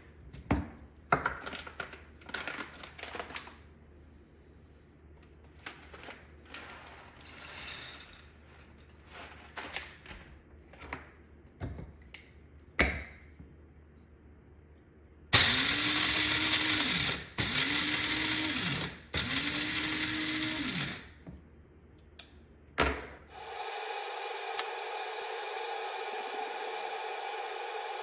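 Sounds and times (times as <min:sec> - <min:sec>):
electric coffee grinder: 0:15.4 - 0:21.1, 0:23.3 - 0:28.0.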